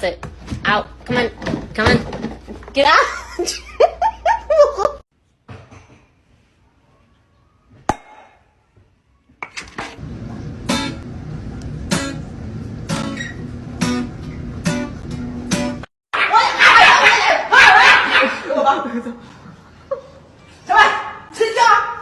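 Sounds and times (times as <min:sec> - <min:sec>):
acoustic guitar strumming: 0:10.6 - 0:15.9.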